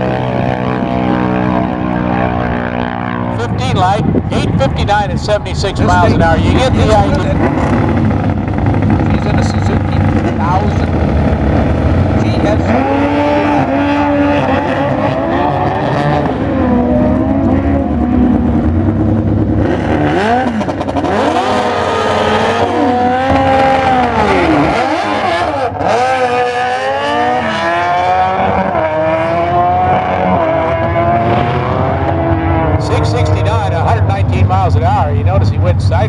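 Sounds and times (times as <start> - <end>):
motorcycle engines accelerating: 0.0 - 36.0.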